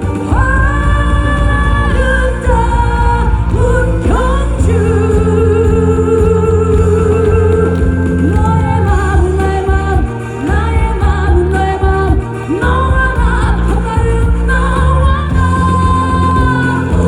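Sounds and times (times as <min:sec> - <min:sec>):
backing track with heavy bass: 0:00.0 - 0:17.0
woman singing with vibrato: 0:00.0 - 0:17.0.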